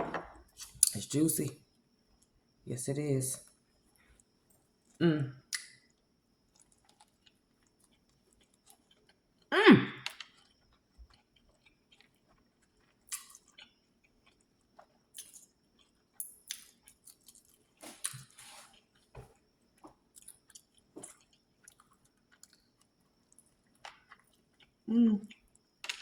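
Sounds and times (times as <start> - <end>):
person chewing food: 5.5 - 25.8.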